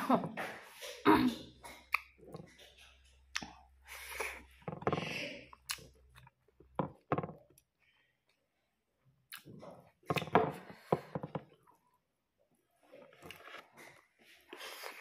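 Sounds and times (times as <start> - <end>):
person chewing and smacking: 1.6 - 6.8, 9.3 - 11.8, 12.9 - 15.0.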